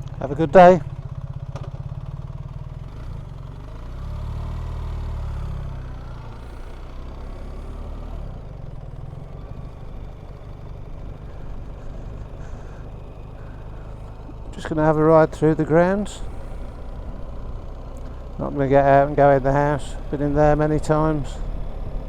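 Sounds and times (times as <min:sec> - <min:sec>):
motorcycle engine pulling away: 0:00.0 - 0:22.0.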